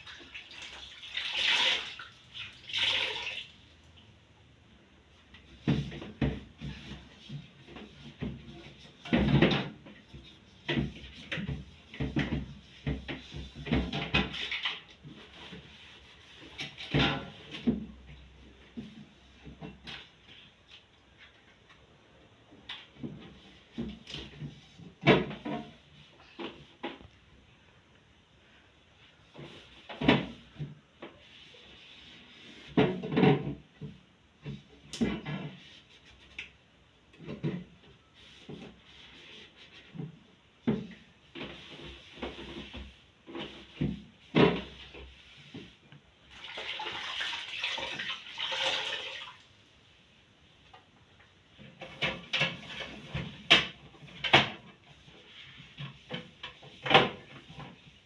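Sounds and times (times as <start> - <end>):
knocks and rubbing in a fridge: 5.4 - 20.2, 22.9 - 27.0, 29.3 - 36.2, 37.2 - 45.8, 51.6 - 58.0
fridge drawers knocking and clattering: 5.5 - 14.4, 16.6 - 18.1, 23.0 - 25.8, 29.9 - 30.8, 32.7 - 35.6.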